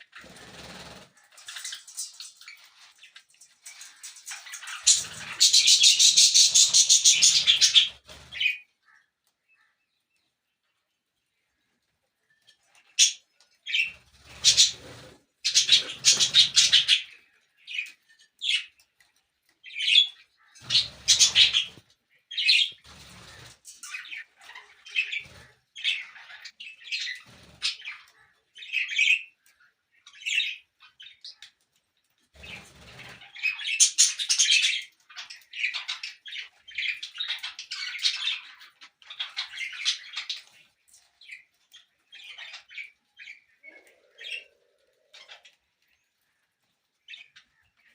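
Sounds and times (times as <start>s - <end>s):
parrots chirping and squawking: 0.0s - 9.8s, 12.6s - 18.8s, 19.6s - 31.6s, 32.4s - 47.9s.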